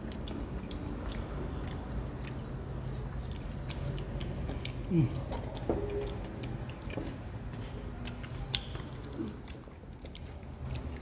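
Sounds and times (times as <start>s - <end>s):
people chewing fries: 0.0s - 11.0s.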